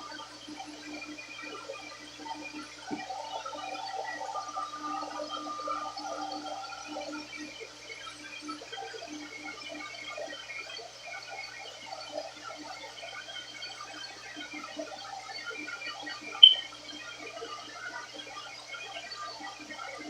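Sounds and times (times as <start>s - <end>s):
sharp high-pitched blip: 16.4s - 16.7s.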